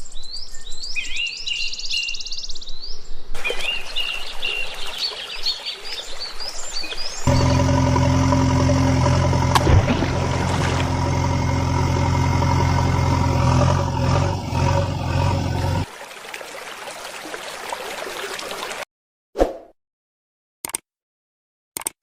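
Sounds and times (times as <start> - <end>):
cartoon engine idling: 7.3 - 15.9.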